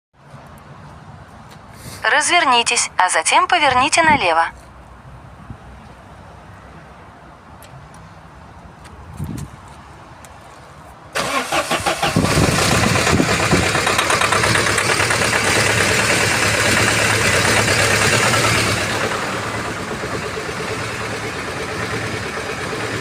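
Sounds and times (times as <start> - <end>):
diesel engine cranking: 11.2 - 23.0
diesel engine running: 11.2 - 23.0.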